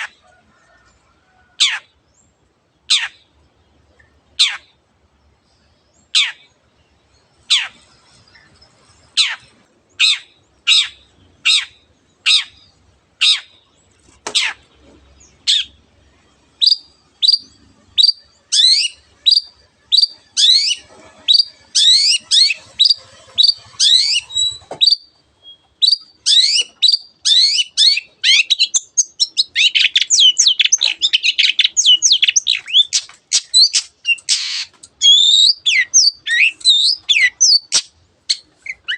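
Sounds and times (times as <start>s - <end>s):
shrike singing: 14.4s - 38.9s.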